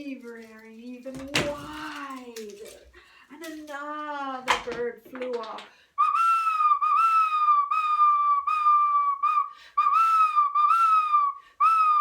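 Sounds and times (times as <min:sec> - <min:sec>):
person whistling bird calls: 0:06.0 - 0:12.0.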